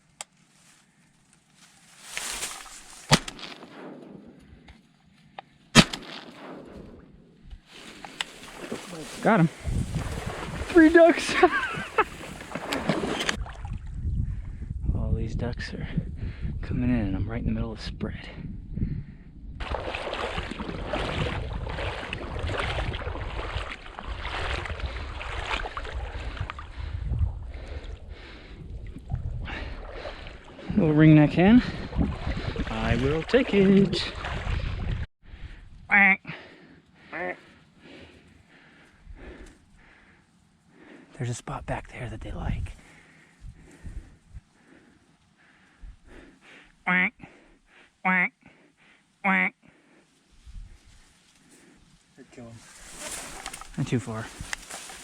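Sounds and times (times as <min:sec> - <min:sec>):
water sloshing and splashing: 0:01.8 - 0:03.6, 0:07.8 - 0:14.0, 0:19.6 - 0:26.9, 0:27.6 - 0:30.8, 0:31.8 - 0:35.1, 0:52.6 - 0:55.0
shotgun shots: 0:05.7 - 0:06.8.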